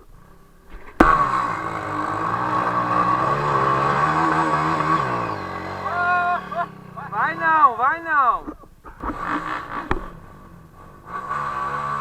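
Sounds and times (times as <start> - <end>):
motorcycle engine revving: 0.0 - 12.0
person shouting: 5.8 - 8.4.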